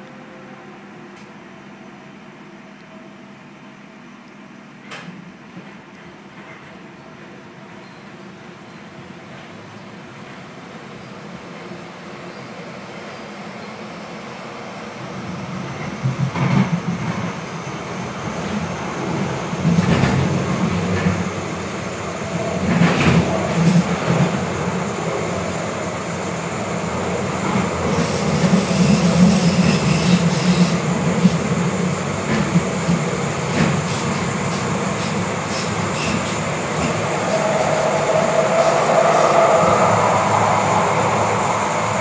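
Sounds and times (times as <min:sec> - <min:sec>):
train wheels rumbling on rails: 0:14.9 - 0:42.0.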